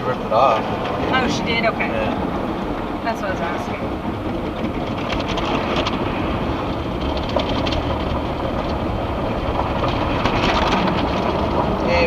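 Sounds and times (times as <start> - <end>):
car wash water rushing: 0.0 - 12.0
rapid clattering against car body: 0.5 - 12.0.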